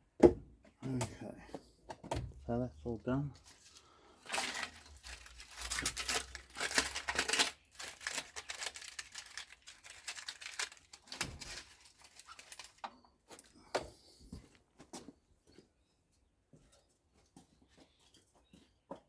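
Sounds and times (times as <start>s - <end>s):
material tearing and rustling: 3.4s - 12.8s.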